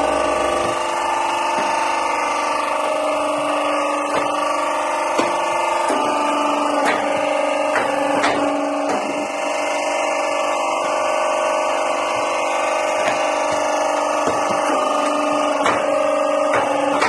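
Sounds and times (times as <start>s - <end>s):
machine motor hum: 0.0s - 17.0s
sharp knocks: 4.1s - 4.5s, 6.8s - 9.3s, 13.0s - 14.8s, 15.6s - 17.0s.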